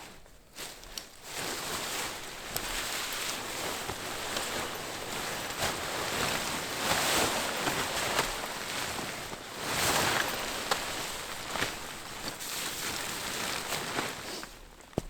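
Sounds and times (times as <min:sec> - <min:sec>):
rustling hissing noise: 0:00.0 - 0:14.8.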